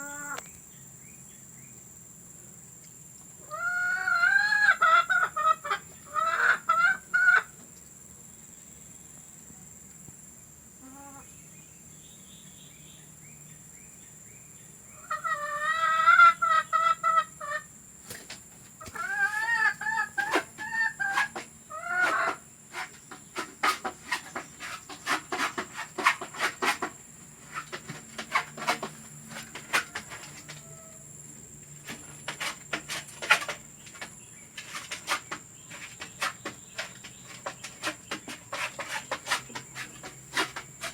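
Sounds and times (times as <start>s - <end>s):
hen cackling: 0.0s - 0.5s, 3.4s - 7.6s, 10.8s - 11.3s, 15.0s - 17.7s, 18.8s - 22.9s.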